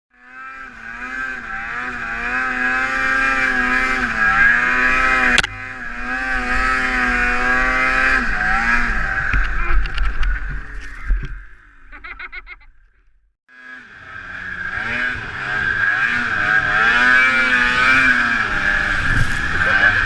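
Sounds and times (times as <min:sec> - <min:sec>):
snowmobile engine revving: 0:00.1 - 0:12.5, 0:13.5 - 0:20.0.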